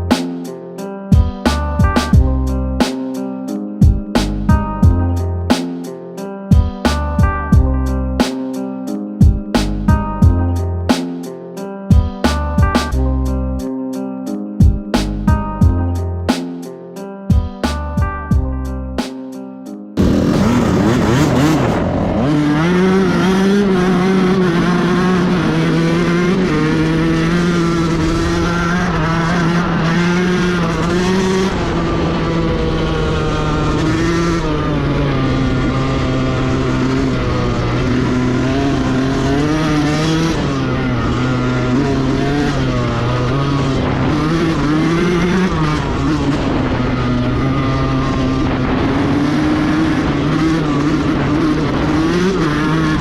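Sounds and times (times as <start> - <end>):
dirt bike engine revving: 20.0 - 53.0.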